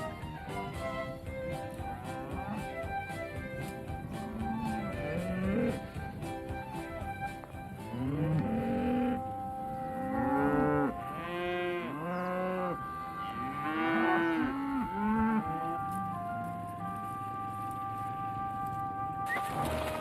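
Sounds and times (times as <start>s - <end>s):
cattle mooing: 4.2s - 6.0s, 7.8s - 19.9s.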